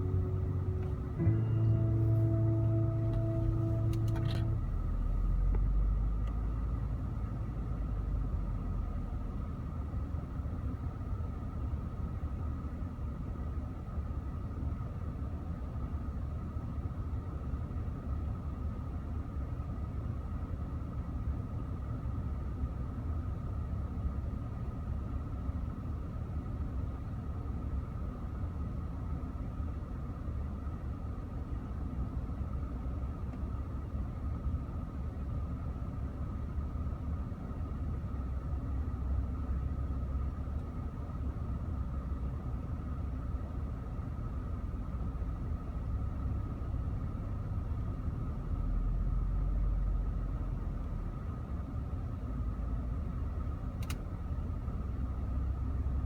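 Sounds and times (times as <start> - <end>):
car engine idling unevenly: 0.0 - 56.0
faint engine whine: 0.0 - 56.0.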